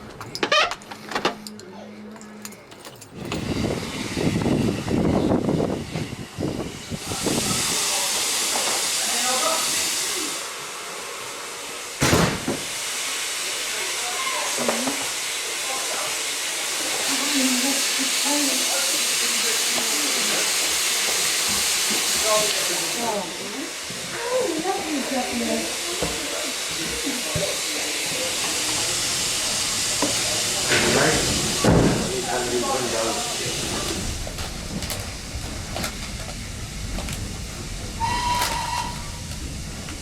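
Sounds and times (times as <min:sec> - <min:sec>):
steam locomotive hissing: 0:03.2 - 0:40.0
faint voices: 0:22.0 - 0:34.8
steam locomotive whistle: 0:38.0 - 0:39.4.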